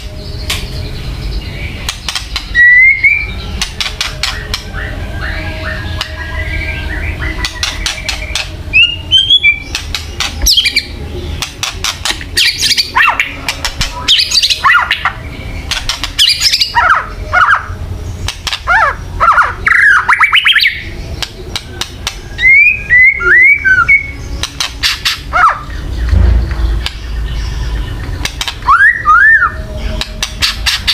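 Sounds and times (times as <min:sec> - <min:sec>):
bird clicking and rattling calls: 0:01.8 - 0:02.6, 0:03.6 - 0:04.7, 0:07.4 - 0:08.5, 0:09.7 - 0:10.8, 0:11.4 - 0:15.1, 0:15.7 - 0:16.8, 0:18.2 - 0:18.7, 0:21.2 - 0:22.2, 0:24.4 - 0:25.3, 0:28.0 - 0:28.7, 0:30.0 - 0:30.9
bird whistled phrases: 0:02.5 - 0:03.4, 0:18.7 - 0:20.9, 0:22.4 - 0:24.2, 0:28.6 - 0:29.6.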